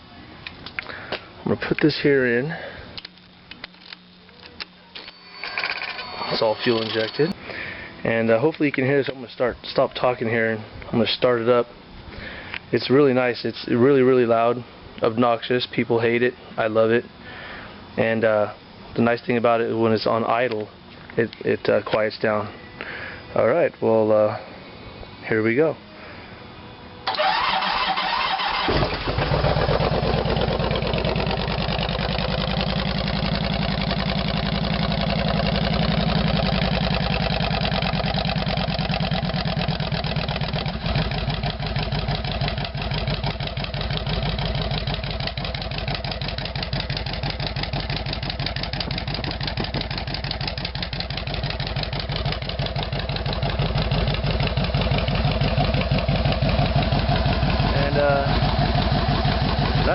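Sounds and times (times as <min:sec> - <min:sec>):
motorcycle engine cranking: 0:05.0 - 0:07.4, 0:27.1 - 0:59.9
loud motorcycle engine idling: 0:28.5 - 0:59.9.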